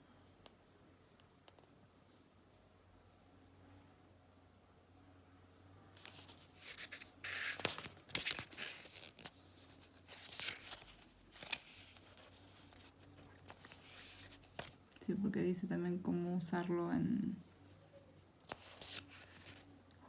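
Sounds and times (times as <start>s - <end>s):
paper rustling and crinkling: 6.0s - 14.8s, 18.5s - 19.7s.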